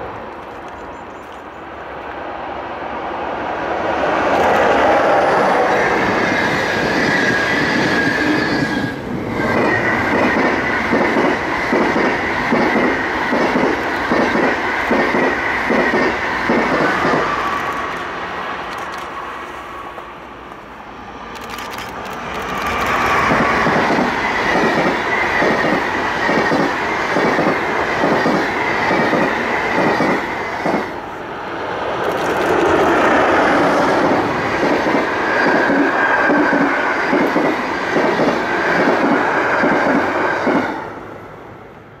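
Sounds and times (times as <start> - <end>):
freight train rumbling past: 0.0 - 42.0.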